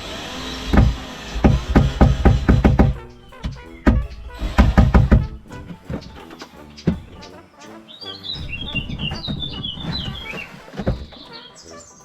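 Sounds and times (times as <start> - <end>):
background music: 0.0 - 12.0
drum hits: 0.7 - 6.2.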